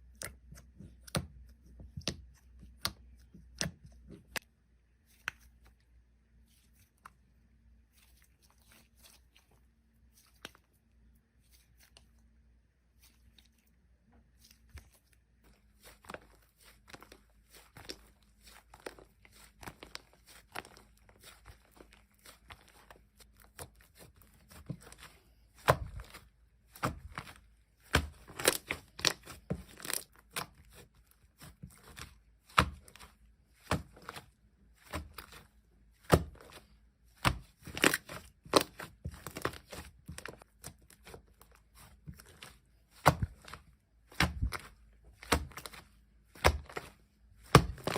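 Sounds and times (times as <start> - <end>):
slime popping and crackling: 27.9 - 30.4.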